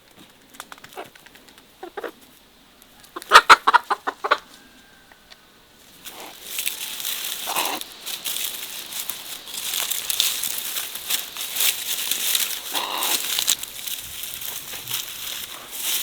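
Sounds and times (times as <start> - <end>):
chicken clucking: 1.8 - 2.2, 2.9 - 5.4, 6.1 - 13.8
rustling crackling noise: 5.8 - 16.0.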